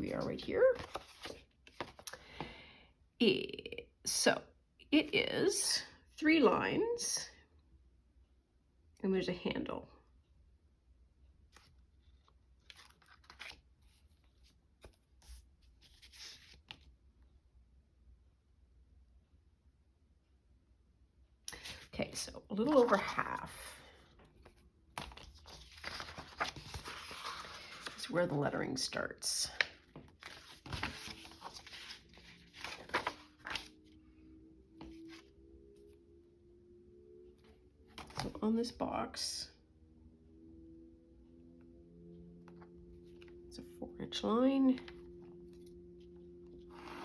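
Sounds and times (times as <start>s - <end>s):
paper rustling: 0.0s - 2.1s, 11.6s - 16.9s, 21.6s - 22.0s, 22.6s - 28.6s, 29.4s - 33.8s
paper scratching and rustling: 24.4s - 28.2s, 29.6s - 33.7s.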